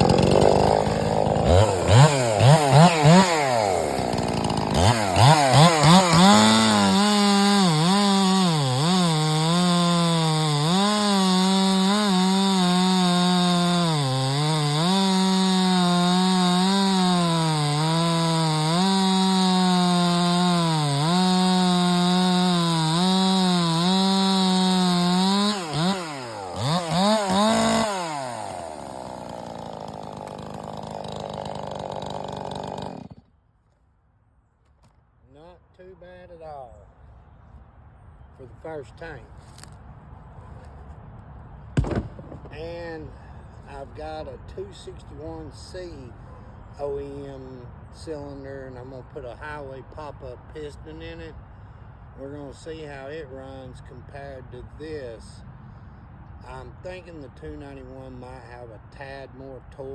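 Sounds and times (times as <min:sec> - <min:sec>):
chainsaw revving: 0:00.0 - 0:33.3
chainsaw cutting wood: 0:00.0 - 0:33.4, 0:38.6 - 0:39.8, 0:41.8 - 0:45.7.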